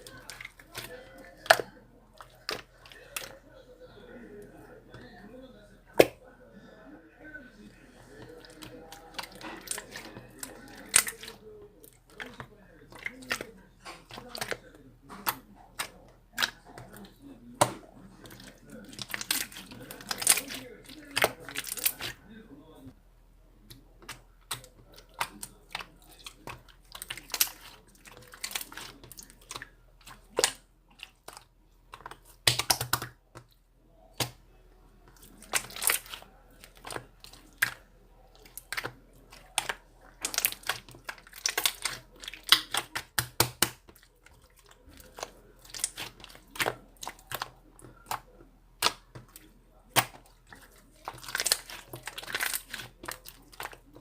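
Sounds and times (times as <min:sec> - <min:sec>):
slime squished by hand: 0:08.1 - 0:22.2, 0:23.7 - 0:33.2, 0:35.1 - 0:54.0.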